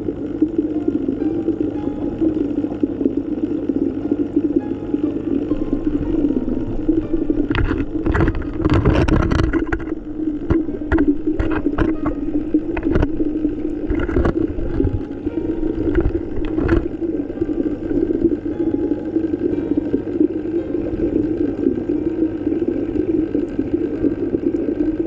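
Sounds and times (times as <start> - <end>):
sharp underwater clicks and pops: 0.0 - 18.5
underwater low rumble: 0.0 - 25.0.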